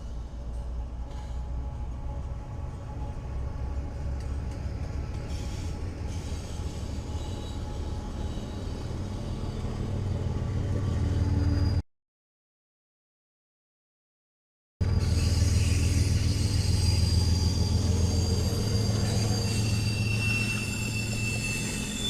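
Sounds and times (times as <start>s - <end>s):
train rumbling past: 0.0s - 11.8s, 14.8s - 22.0s.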